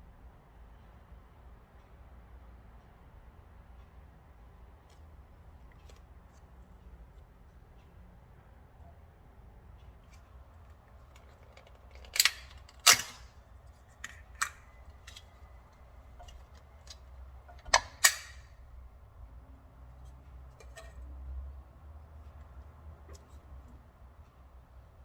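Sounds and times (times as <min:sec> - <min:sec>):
objects clicking and knocking: 0:10.1 - 0:18.5.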